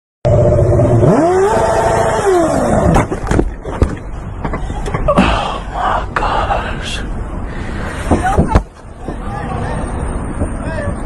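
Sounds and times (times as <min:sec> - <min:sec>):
vehicle engine revving: 0:00.3 - 0:03.1.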